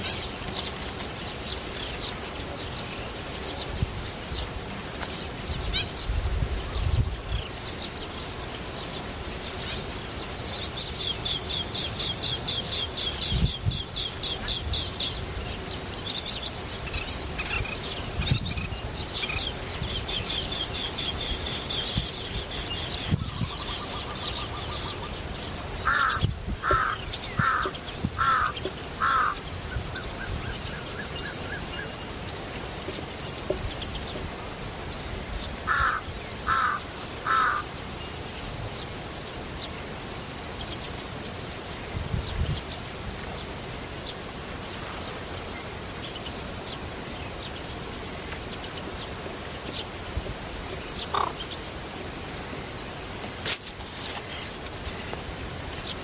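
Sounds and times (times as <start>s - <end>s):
lower bird calls: 5.1s - 32.6s, 34.9s - 38.2s.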